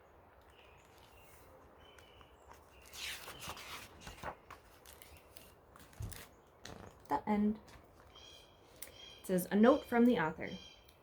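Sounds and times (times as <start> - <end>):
soft rustling: 0.6 - 8.8.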